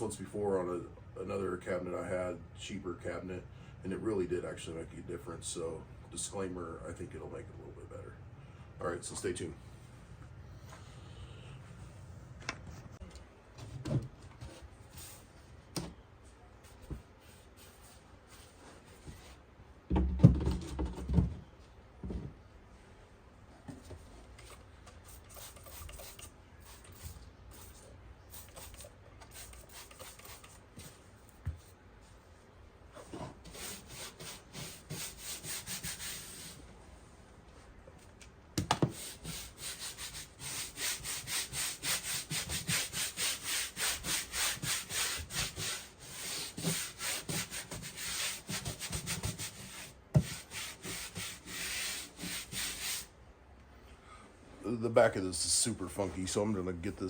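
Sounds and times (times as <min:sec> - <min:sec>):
rubbing on wooden cabinet: 0:33.0 - 0:36.6, 0:38.8 - 0:53.1.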